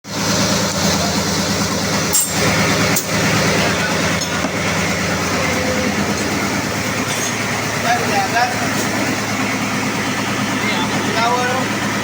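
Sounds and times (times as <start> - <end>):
diesel machinery droning: 0.0 - 12.0.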